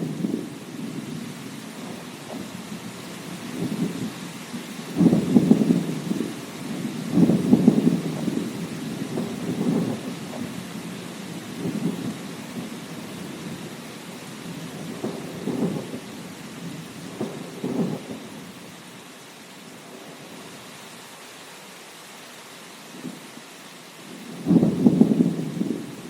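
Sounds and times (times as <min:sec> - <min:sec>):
thunder rumbling: 0:00.0 - 0:13.8, 0:14.5 - 0:18.5, 0:24.2 - 0:26.0
steady rain hiss: 0:00.0 - 0:26.0.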